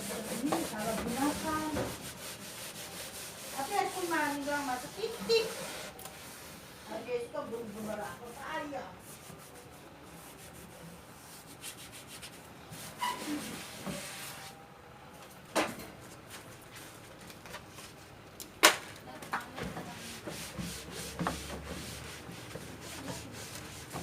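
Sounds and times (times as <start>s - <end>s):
scrubbing surfaces: 0.0s - 6.5s.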